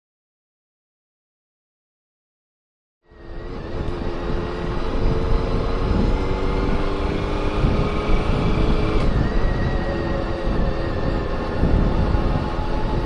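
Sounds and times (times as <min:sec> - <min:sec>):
motorcycle engine running: 0:03.1 - 0:13.0
wind rumble on microphone: 0:03.1 - 0:13.0.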